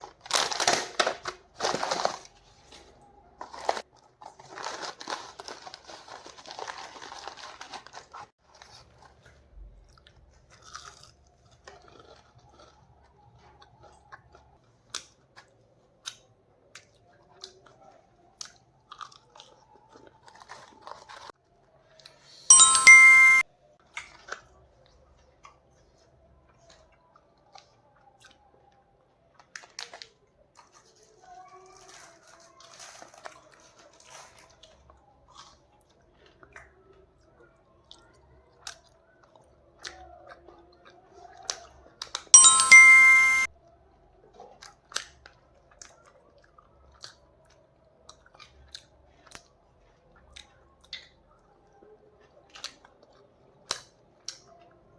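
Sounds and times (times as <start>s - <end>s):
chewing with mouth clicks: 9.9s - 21.3s, 45.7s - 49.5s, 52.2s - 54.8s
loud ringing tone: 22.5s - 23.4s, 42.4s - 43.5s.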